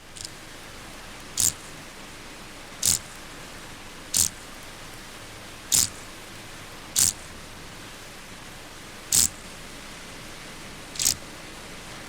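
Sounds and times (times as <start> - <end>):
grasshopper chirping: 0.0 - 0.4, 1.3 - 1.8, 2.8 - 3.3, 4.1 - 4.6, 5.7 - 6.1, 7.0 - 7.4, 9.1 - 9.4, 11.0 - 11.2
steady hiss: 0.0 - 12.0.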